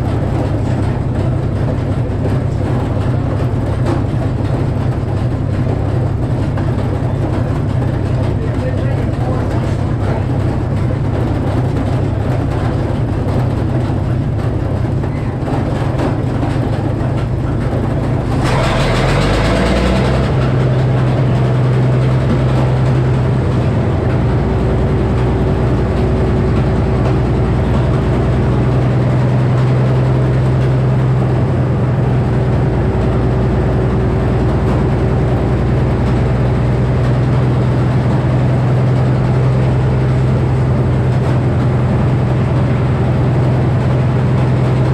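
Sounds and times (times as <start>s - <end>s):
circular saw running: 17.0s - 28.5s.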